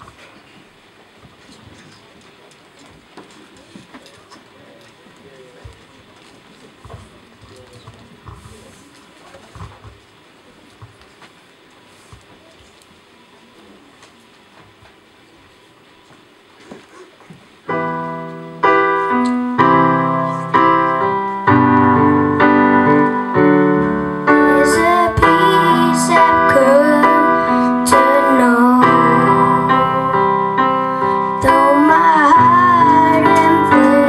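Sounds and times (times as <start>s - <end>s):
electric keyboard chords: 17.6s - 34.0s
person singing: 19.8s - 34.0s.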